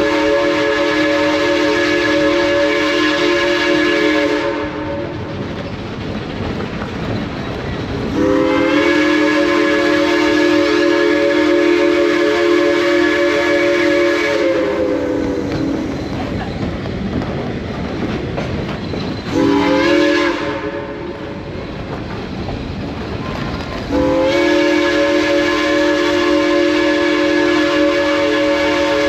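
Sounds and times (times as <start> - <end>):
steam locomotive whistle: 0.0 - 5.3, 8.1 - 16.1, 19.3 - 21.6, 23.9 - 29.0
train rumbling: 0.0 - 29.0.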